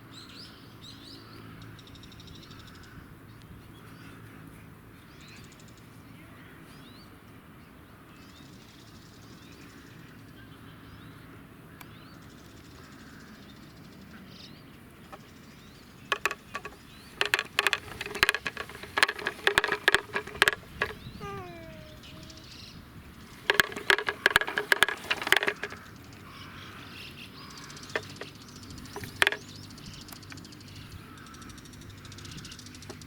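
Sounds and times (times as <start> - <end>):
faint birdsong: 0.0 - 33.0
toy rattling and clacking: 16.0 - 22.6, 23.2 - 26.1, 27.6 - 30.5.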